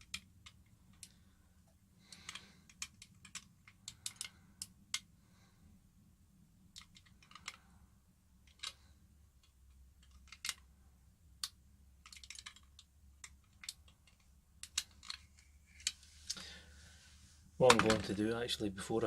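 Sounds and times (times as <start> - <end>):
small clicks and taps: 9.4 - 10.7.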